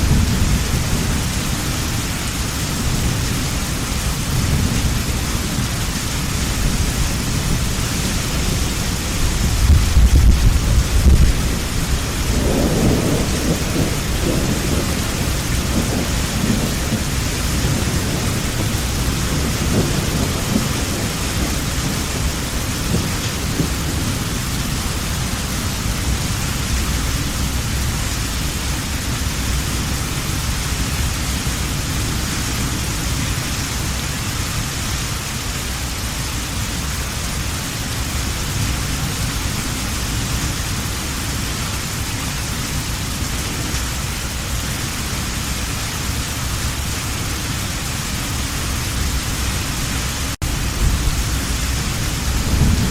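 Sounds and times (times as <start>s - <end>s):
low thunder rumble: 0.0s - 33.7s, 47.9s - 52.9s
heavy rain hiss: 0.0s - 52.9s.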